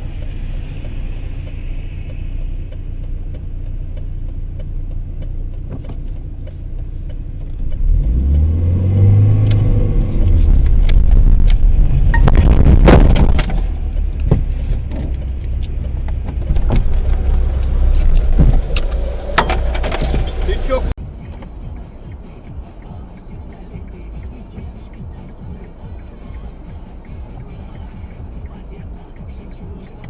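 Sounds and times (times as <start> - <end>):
road and engine rumble: 0.0 - 30.0
car collision impacts: 12.1 - 15.2.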